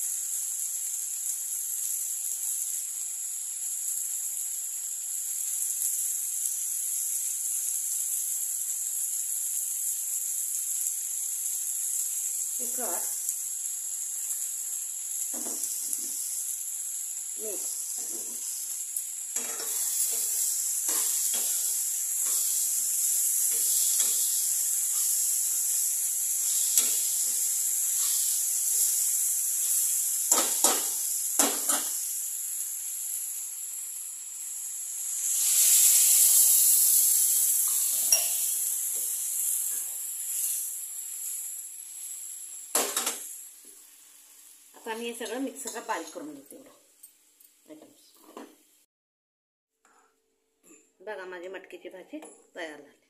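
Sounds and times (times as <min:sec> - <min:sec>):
vegetables sizzling in oil: 0:00.0 - 0:48.9
metal spoon scraping a pan: 0:19.4 - 0:25.2, 0:26.4 - 0:29.0, 0:37.7 - 0:38.6.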